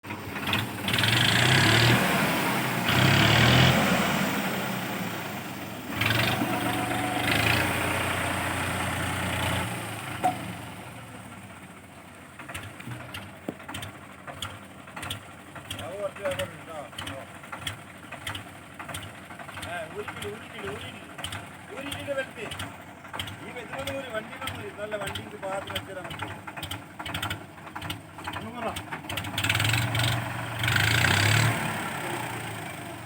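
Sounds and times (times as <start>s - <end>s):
tractor diesel engine surging: 0.0s - 33.0s
scattered clicks: 12.6s - 29.2s.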